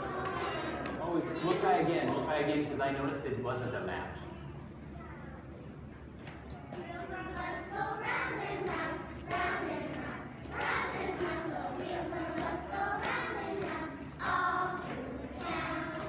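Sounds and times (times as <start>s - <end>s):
children singing and chanting: 0.0s - 1.4s, 6.7s - 16.0s.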